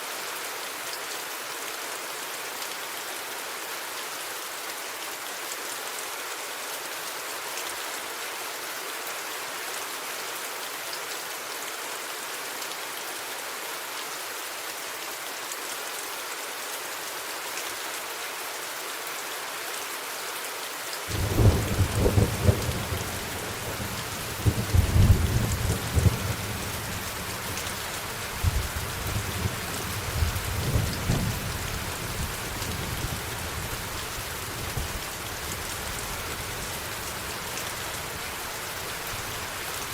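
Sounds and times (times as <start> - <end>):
rain falling: 0.0 - 39.9
thunder rumbling: 21.1 - 27.7.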